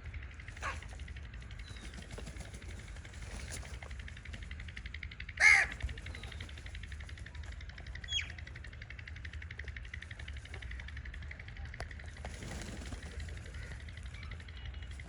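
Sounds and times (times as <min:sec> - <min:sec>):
pulsing background hum: 0:00.0 - 0:15.0
crow cawing: 0:05.4 - 0:05.8.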